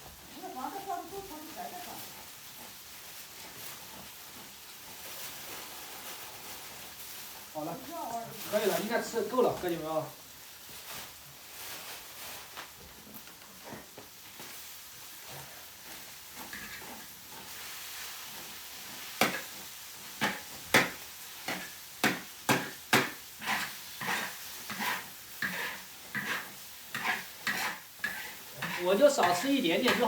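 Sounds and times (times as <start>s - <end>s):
faint sizzle: 0.0s - 30.0s
metal spatula scraping pan: 15.3s - 20.6s, 21.4s - 30.0s.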